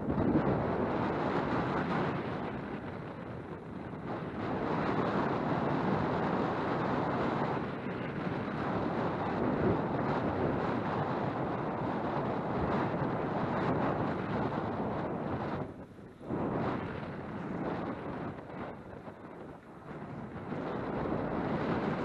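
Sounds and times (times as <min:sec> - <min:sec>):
rumble of bike tyres: 0:00.0 - 0:22.0
wind buffeting microphone: 0:00.0 - 0:22.0.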